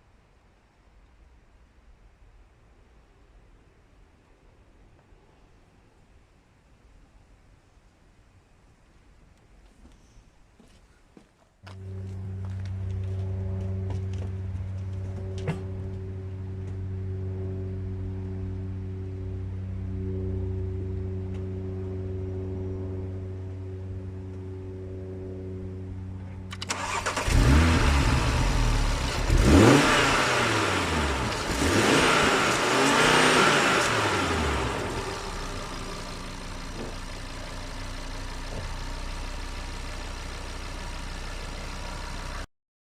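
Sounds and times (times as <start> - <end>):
low hum: 11.6 - 42.5
car engine revving: 11.7 - 42.3.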